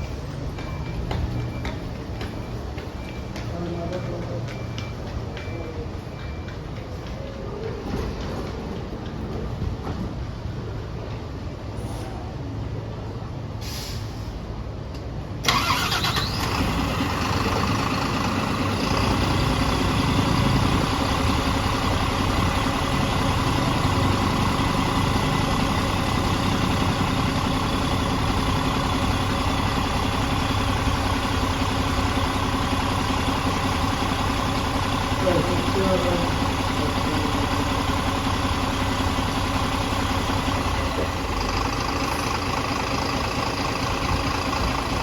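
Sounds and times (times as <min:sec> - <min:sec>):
bus engine starting and idling: 0:00.0 - 0:45.0.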